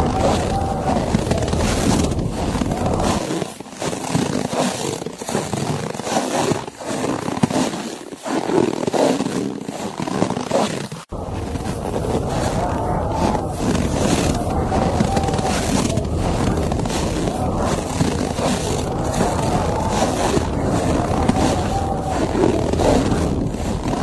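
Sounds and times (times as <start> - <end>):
blizzard wind: 0.0 - 3.2, 11.1 - 24.0.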